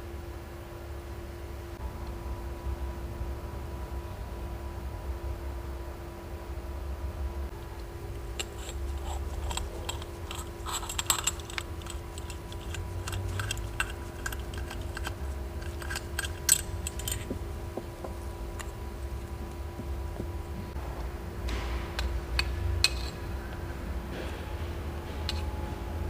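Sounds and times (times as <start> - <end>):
faint hum: 0.0 - 26.0
small metal parts clinking: 8.3 - 17.4.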